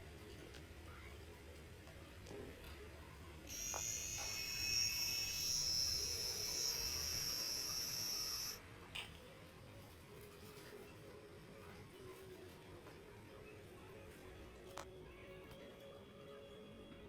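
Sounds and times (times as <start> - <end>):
label printer motor whining: 3.5 - 8.6.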